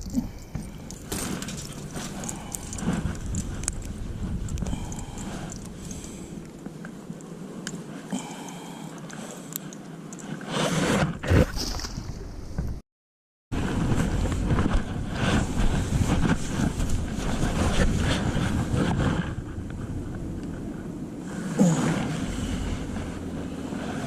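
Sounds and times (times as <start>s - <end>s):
wind buffeting microphone: 0.0s - 7.9s, 13.6s - 24.0s.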